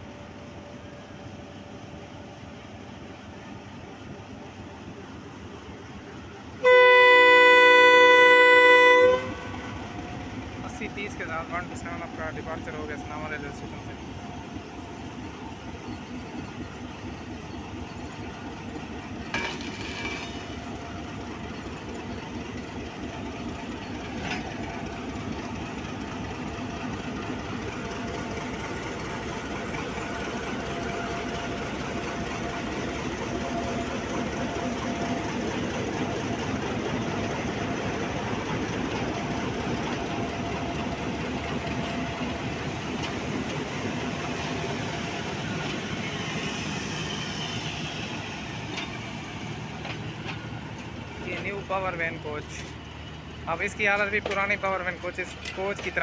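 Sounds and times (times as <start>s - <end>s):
diesel locomotive passing slowly: 0.0s - 56.0s
train coaches rolling on rails: 0.0s - 56.0s.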